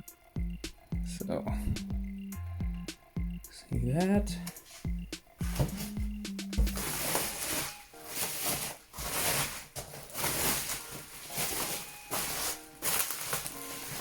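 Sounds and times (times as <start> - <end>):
packaging rustling and crinkling: 6.6 - 14.0.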